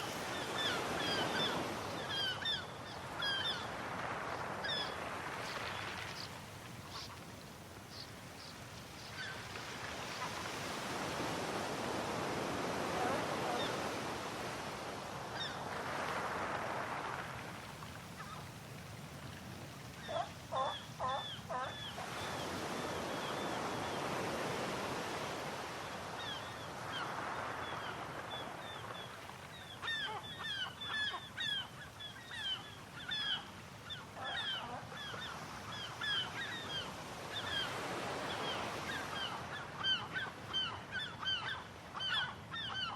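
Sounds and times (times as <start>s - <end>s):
sea waves washing: 0.0s - 30.4s.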